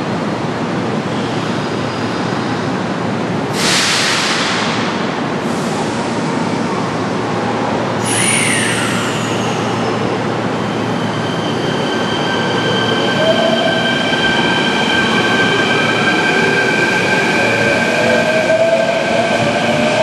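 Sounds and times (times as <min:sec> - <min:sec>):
train rumbling: 0:00.0 - 0:20.0
high train brake squeal: 0:01.1 - 0:02.7, 0:08.0 - 0:15.6.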